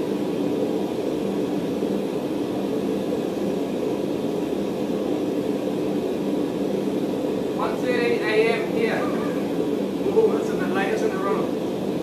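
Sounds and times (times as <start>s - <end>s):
forge roaring: 6.8s - 10.6s.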